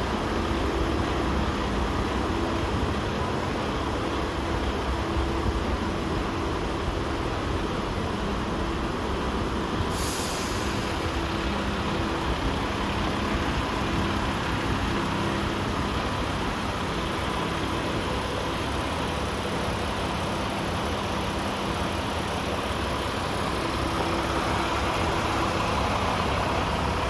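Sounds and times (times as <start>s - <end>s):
diesel truck engine idling: 0.0s - 27.0s
air hiss: 9.9s - 11.9s.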